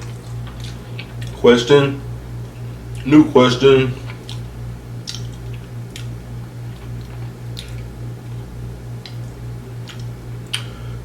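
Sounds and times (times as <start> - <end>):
person chewing food: 0.0 - 1.4, 2.2 - 3.2, 3.8 - 10.9
wet mouth clicks: 0.0 - 1.4, 4.0 - 6.2, 6.8 - 7.9, 9.0 - 10.7
low electrical hum: 0.0 - 11.0.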